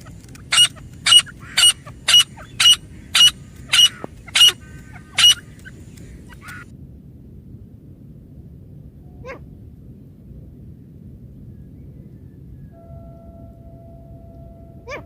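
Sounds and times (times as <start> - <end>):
bird giving sharp high calls: 0.0 - 6.6.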